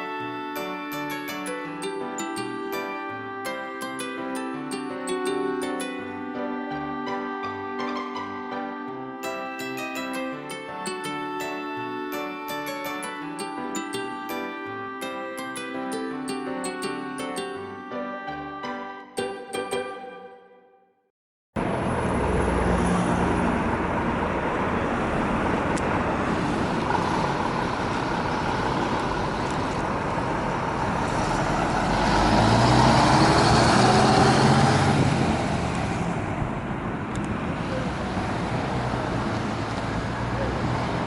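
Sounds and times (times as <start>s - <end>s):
road noise: 21.6s - 41.0s
vehicle engine accelerating: 21.6s - 41.0s.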